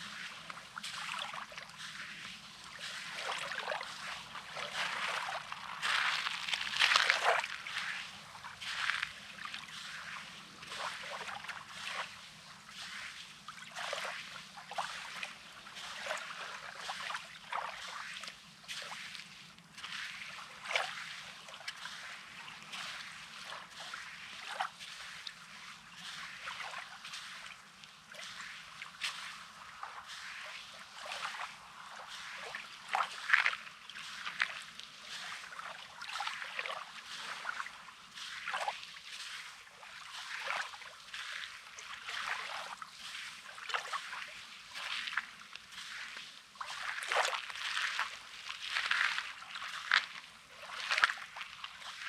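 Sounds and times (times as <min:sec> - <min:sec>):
small waves lapping on beach: 0:00.0 - 0:52.0.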